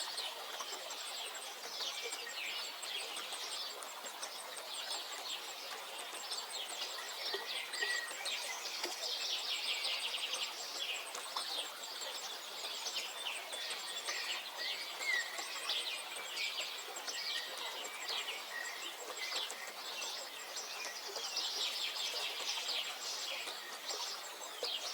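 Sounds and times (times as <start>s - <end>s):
steady background hiss: 0.0s - 24.9s
birds chirping and singing: 5.9s - 24.9s.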